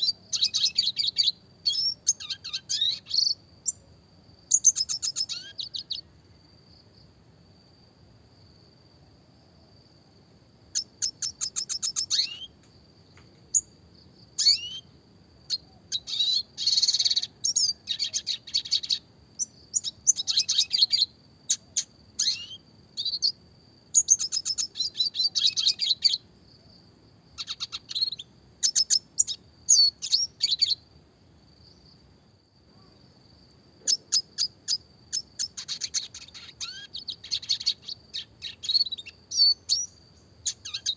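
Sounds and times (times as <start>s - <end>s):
bird twittering trills and chirps: 0.0s - 3.8s, 4.5s - 6.1s, 10.7s - 13.8s, 14.4s - 26.3s, 27.3s - 30.8s, 33.8s - 40.9s.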